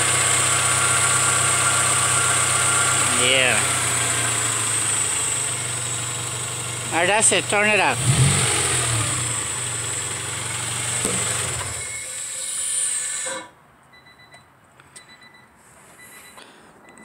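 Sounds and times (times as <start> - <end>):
low engine hum: 0.0 - 11.8.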